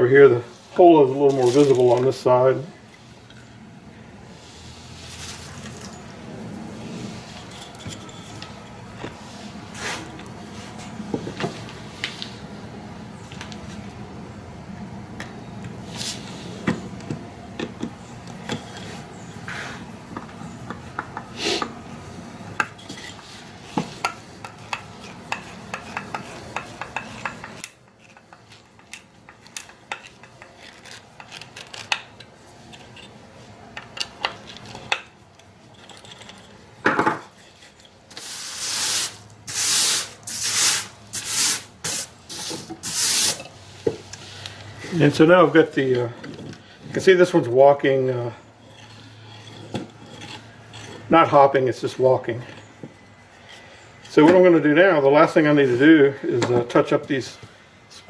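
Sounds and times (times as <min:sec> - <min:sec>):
wood scraping on wood: 0:06.9 - 0:12.4, 0:18.5 - 0:21.8, 0:47.8 - 0:54.5.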